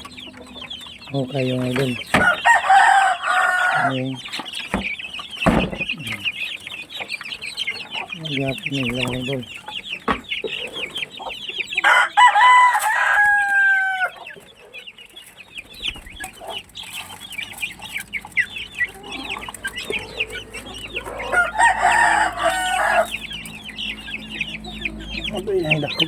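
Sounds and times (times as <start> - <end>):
chickens clucking: 0.0 - 26.0
rooster crowing: 2.1 - 4.1, 11.8 - 14.2, 20.2 - 23.4.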